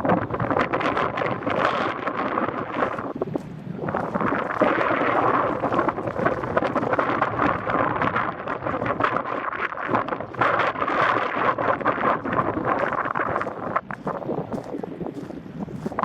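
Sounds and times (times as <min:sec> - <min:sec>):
wind buffeting microphone: 0:00.0 - 0:16.0
footsteps crunching on stones: 0:02.6 - 0:08.1, 0:11.8 - 0:16.0.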